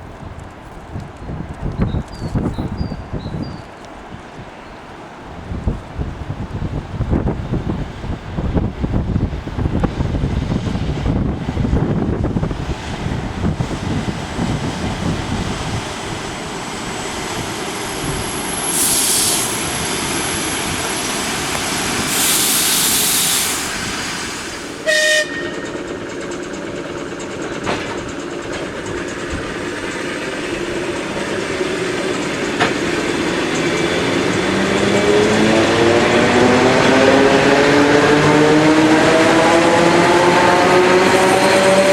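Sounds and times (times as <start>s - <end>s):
train rumbling past: 0.0s - 41.9s
bursts of hiss: 18.6s - 24.8s
rising whine: 30.5s - 41.9s.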